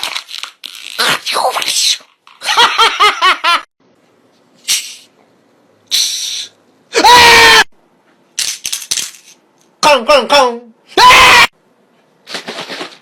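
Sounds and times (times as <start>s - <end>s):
loud shrill falling cry: 7.0s - 7.7s, 11.0s - 11.5s.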